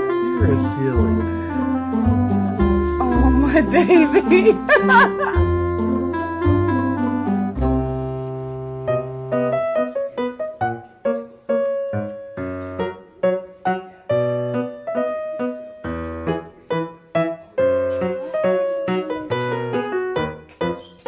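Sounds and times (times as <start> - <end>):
low held bass notes: 0.0 - 8.2
piano melody: 0.0 - 21.0.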